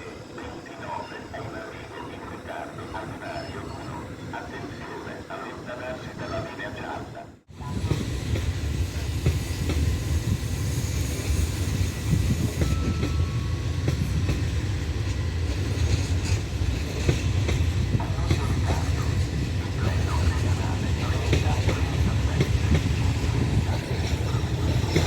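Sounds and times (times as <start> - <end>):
train rumbling past: 7.4 - 25.0.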